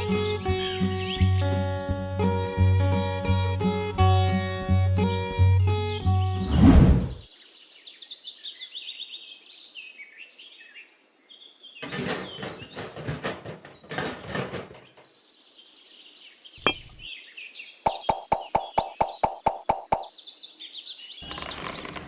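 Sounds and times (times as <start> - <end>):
birds chirping: 0.0 - 10.8, 13.6 - 22.0
rapid clicks and knocks: 11.8 - 14.9.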